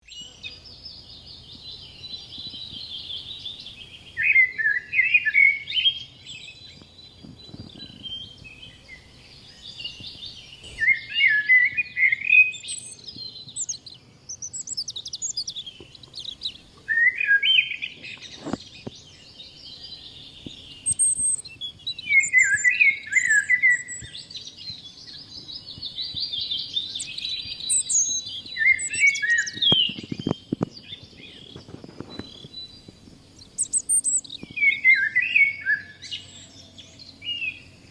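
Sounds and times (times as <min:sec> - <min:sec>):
birds singing: 0:00.0 - 0:37.9.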